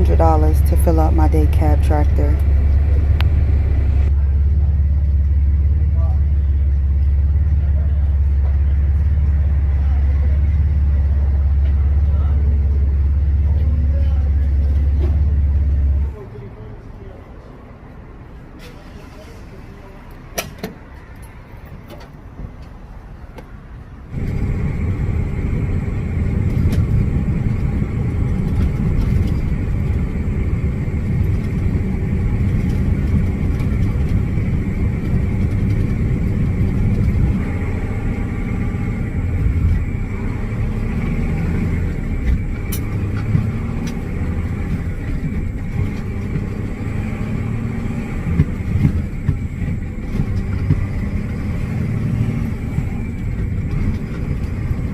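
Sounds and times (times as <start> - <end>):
truck engine and road rumble: 0.0 - 54.9.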